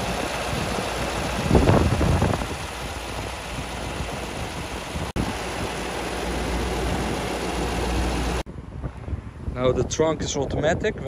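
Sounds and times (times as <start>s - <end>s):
car engine idling: 0.0s - 8.4s.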